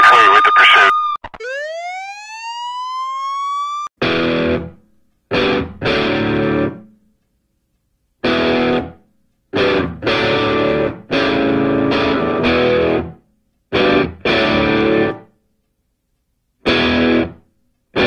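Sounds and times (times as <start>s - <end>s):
police siren wailing: 0.0s - 3.9s
distorted electric guitar chords: 4.0s - 6.8s, 8.2s - 15.2s, 16.6s - 17.4s.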